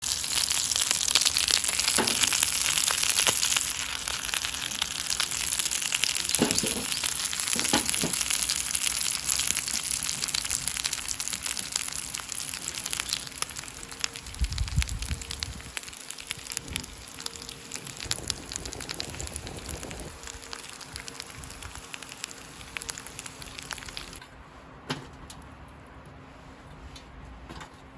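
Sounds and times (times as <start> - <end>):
fish sizzling on a grill: 0.0 - 24.2
wood fire crackling: 0.0 - 24.2.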